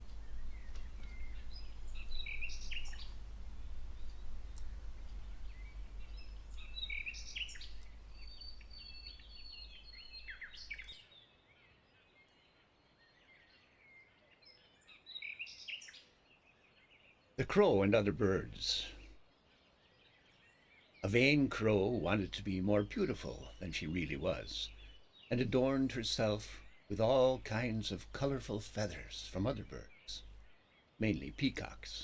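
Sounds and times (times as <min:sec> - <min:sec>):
low steady hum: 0:00.0 - 0:10.9, 0:21.0 - 0:32.0
birds chirping and whistling: 0:00.0 - 0:11.0.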